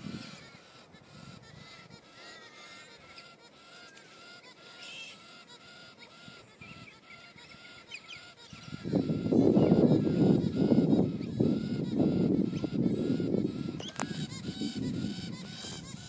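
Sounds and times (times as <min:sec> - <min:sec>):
faint high bird chirps: 0:00.1 - 0:16.0.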